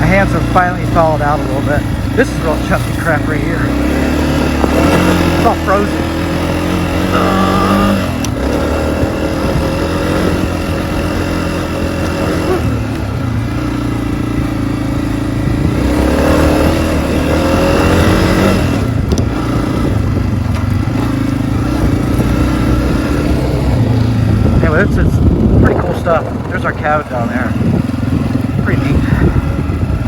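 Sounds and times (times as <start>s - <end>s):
dirt bike engine running: 0.0s - 30.0s.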